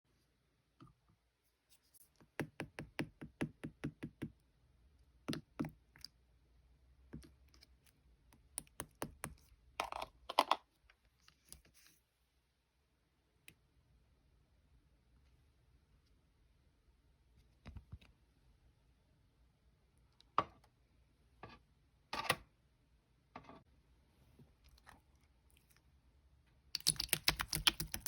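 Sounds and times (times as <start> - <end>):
slime crackles: 26.8 - 28.0.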